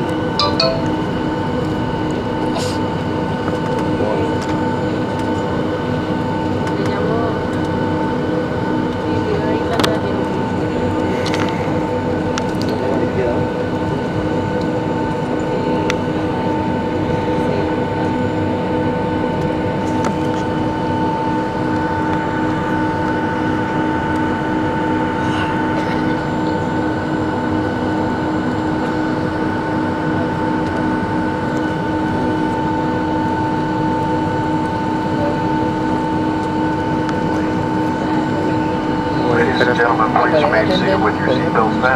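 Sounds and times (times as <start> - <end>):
jet engines hum and rush: 0.0 - 41.9
steady whining tones: 33.3 - 41.9.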